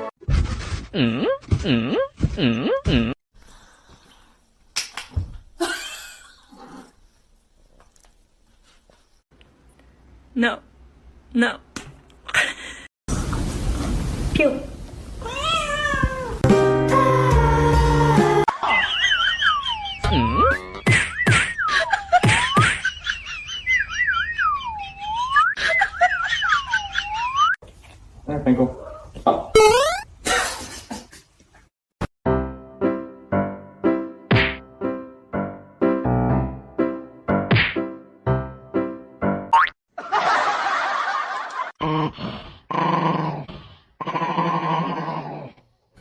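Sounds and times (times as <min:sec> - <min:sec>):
whistled wobbling trill: 0:23.5 - 0:25.6.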